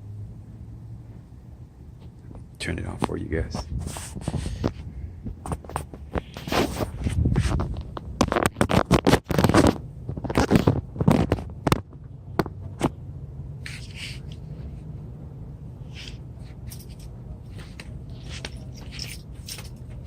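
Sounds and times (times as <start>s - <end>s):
engine running with low hum: 0.0s - 20.0s
scraping and clicking handling noise: 5.4s - 13.0s, 15.9s - 20.0s.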